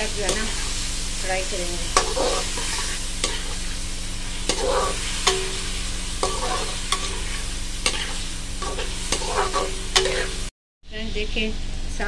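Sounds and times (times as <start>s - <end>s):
chicken sizzling in hot oil: 0.0s - 10.5s
spatula knocking metal pan: 4.5s - 7.2s.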